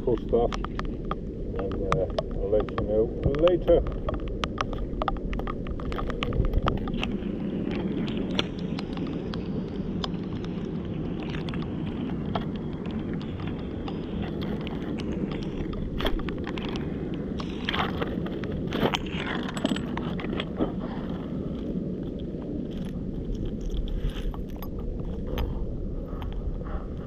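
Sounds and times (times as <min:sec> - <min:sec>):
sharp clicks and taps: 0:00.0 - 0:09.4
wind buffeting microphone: 0:00.0 - 0:27.0.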